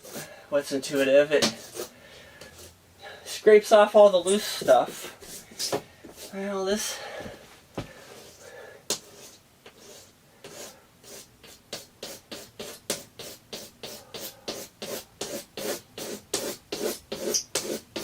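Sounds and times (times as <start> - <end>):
razor blade scraping glass: 16.9 - 18.0.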